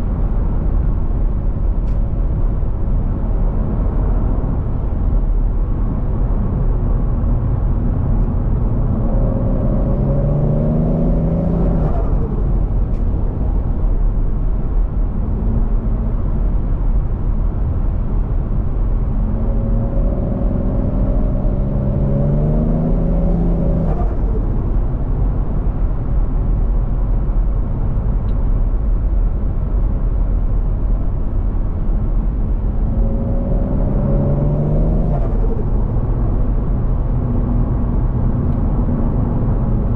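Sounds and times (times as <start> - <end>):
low road rumble: 0.0 - 39.9
car engine accelerating hard: 5.6 - 16.7, 17.6 - 26.0, 31.6 - 39.9.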